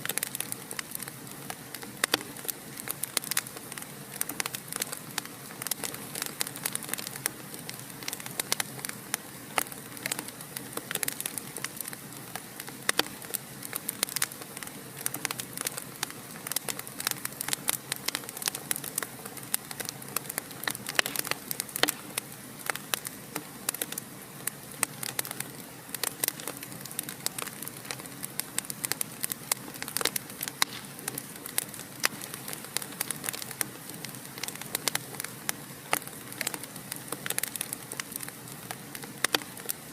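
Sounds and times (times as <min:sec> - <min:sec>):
fire crackling in fireplace: 0:00.0 - 0:39.9.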